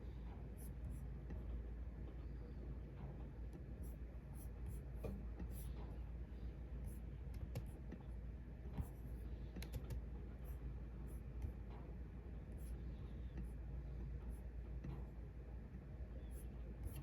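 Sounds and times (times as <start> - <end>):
low steady hum: 0.0 - 17.0
keyboard and mouse clicks: 7.3 - 8.0, 9.5 - 10.0.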